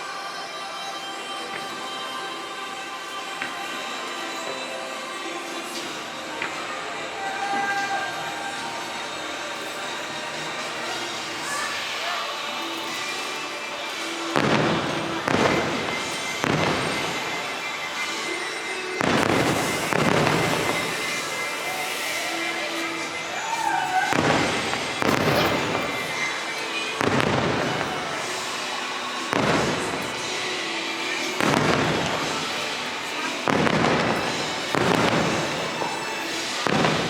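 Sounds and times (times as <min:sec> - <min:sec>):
firework shells booming: 0:13.9 - 0:23.1, 0:23.9 - 0:26.4, 0:27.0 - 0:28.6, 0:29.3 - 0:30.4, 0:31.2 - 0:37.0.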